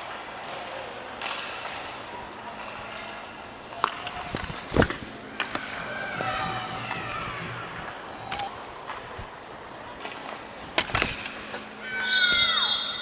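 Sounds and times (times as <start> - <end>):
stick and puck clacks: 1.2 - 9.3
skates scraping on ice: 1.2 - 13.0
faint shouting voices: 2.2 - 8.5, 11.5 - 13.0
hard knock: 3.7 - 8.5.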